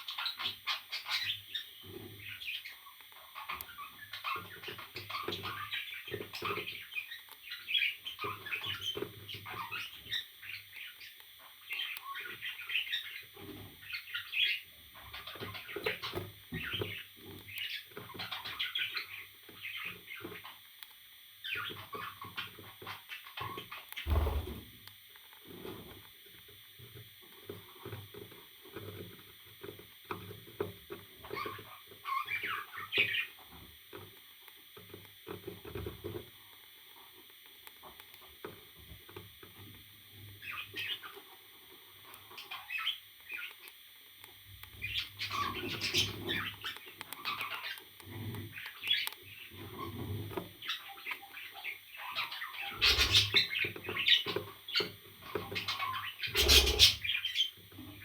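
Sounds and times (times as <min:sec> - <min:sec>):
parrot chirping and squawking: 0:44.8 - 0:47.8, 0:50.6 - 0:57.5.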